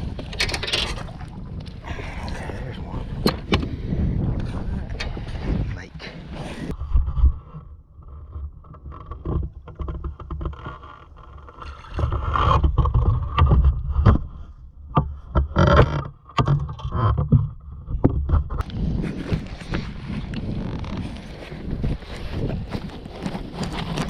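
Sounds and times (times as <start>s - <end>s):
wind buffeting microphone: 0.0s - 7.5s, 17.9s - 24.0s.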